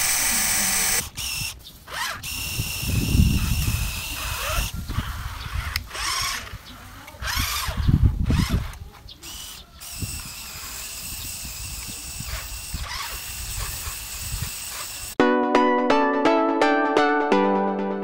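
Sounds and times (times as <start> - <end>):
electric toy motor whine: 0.0 - 15.2.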